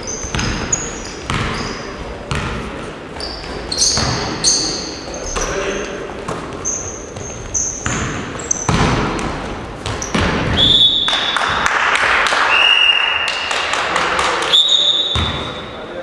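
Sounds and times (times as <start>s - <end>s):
high squeaks: 0.0s - 2.0s, 3.2s - 6.0s, 6.6s - 8.7s
basketballs bouncing in gym: 0.0s - 12.1s, 13.1s - 15.8s.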